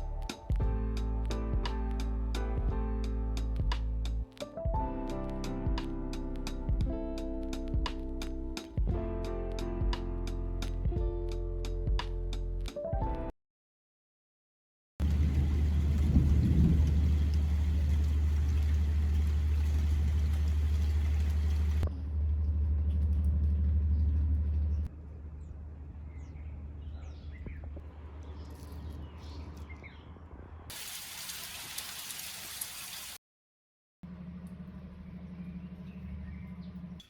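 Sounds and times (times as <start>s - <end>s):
rain hiss: 15.0s - 21.8s, 30.7s - 33.2s
steady low rumble: 15.0s - 28.3s.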